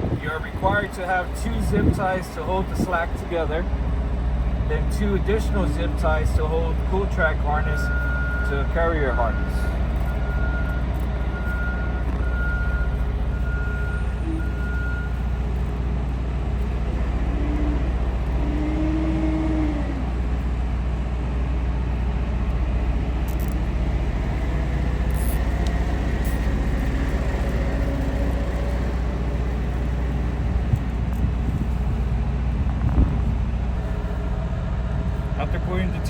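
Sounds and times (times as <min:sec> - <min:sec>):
diesel engine idling: 0:00.0 - 0:36.0
vehicle reversing beep: 0:02.6 - 0:03.1, 0:05.2 - 0:15.8.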